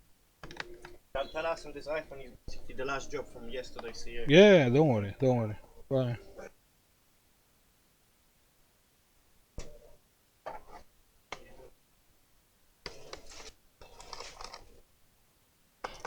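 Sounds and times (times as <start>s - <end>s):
scraping and rustling: 12.9s - 14.8s.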